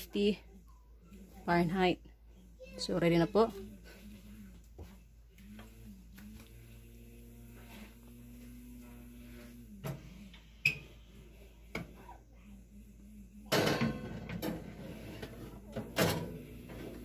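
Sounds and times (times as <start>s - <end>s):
steady low hum: 3.6s - 17.0s.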